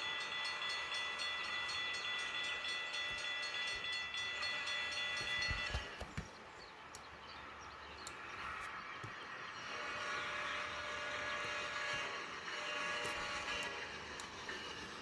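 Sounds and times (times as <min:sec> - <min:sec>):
train rumble and rail noise: 0:00.0 - 0:15.0
sharp clicks: 0:08.0 - 0:08.2.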